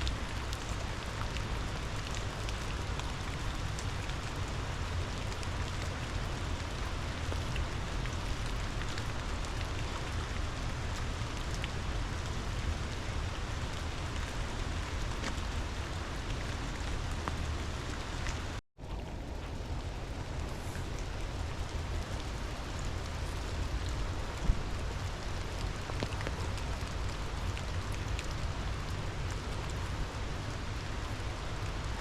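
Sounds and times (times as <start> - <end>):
rain falling: 0.0 - 32.0.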